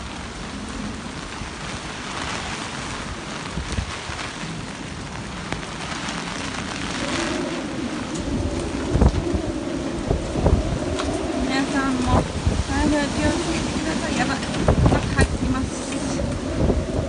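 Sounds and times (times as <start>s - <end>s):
heavy rain pouring: 0.0s - 17.0s
wind gusts: 0.0s - 17.0s
low thumps: 10.0s - 17.0s.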